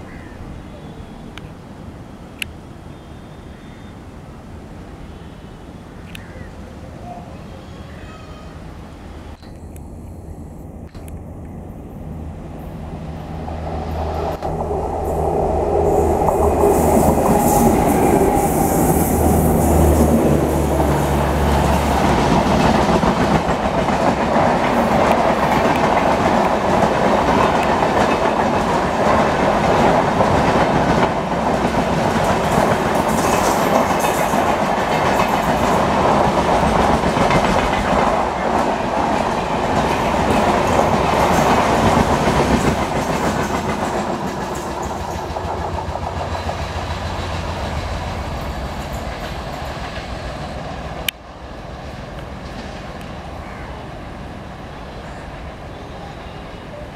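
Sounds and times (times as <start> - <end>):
electric locomotive humming: 0.0 - 56.9
train wheels clattering over rail joints: 22.0 - 50.6.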